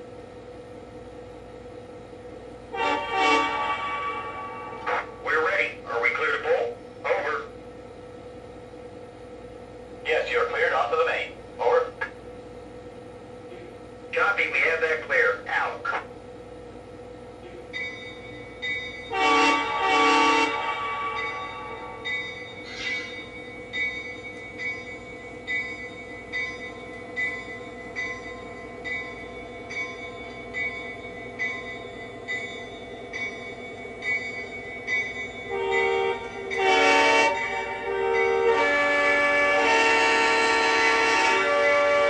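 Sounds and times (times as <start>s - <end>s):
model train horn blasts: 2.7s - 4.9s, 19.1s - 22.0s, 35.5s - 42.0s.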